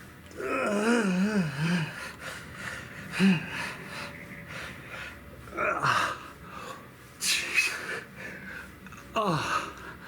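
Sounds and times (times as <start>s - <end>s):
man grunting: 0.4s - 1.9s, 9.2s - 9.8s
man groaning: 0.4s - 2.0s, 9.1s - 9.8s
man breathing hard: 1.4s - 10.0s.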